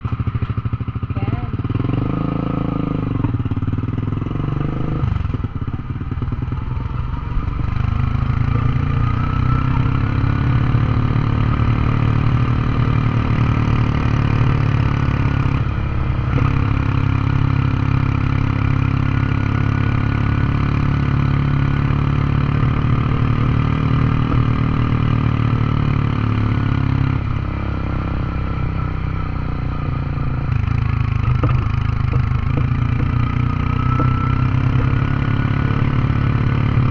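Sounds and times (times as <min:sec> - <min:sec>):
motorcycle engine braking: 0:28.7 - 0:36.7.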